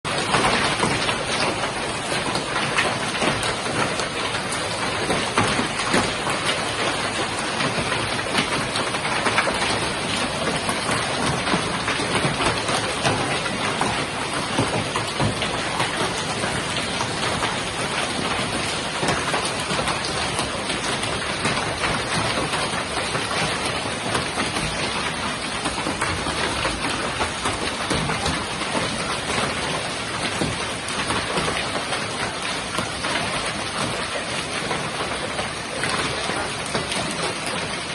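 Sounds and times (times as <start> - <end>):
hail and heavy rain pelting: 0.1 - 37.9.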